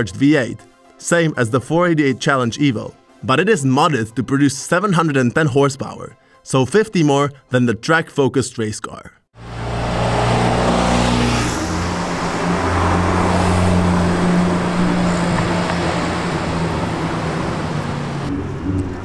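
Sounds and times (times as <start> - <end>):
car engine driving past: 9.4 - 19.0.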